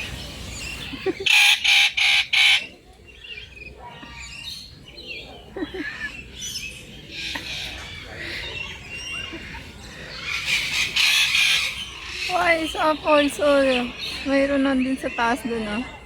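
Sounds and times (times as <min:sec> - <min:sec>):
birds chirping and calling: 0:00.0 - 0:16.0
harsh bird squawks: 0:01.2 - 0:02.7, 0:07.3 - 0:12.9.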